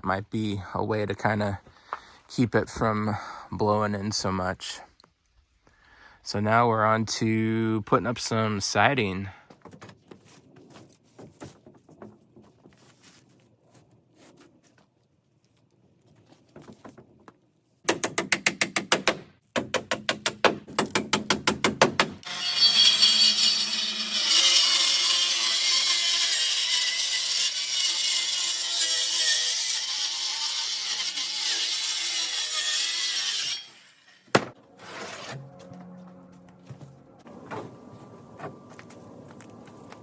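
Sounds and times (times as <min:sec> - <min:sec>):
saw cutting wood: 0:22.2 - 0:37.8.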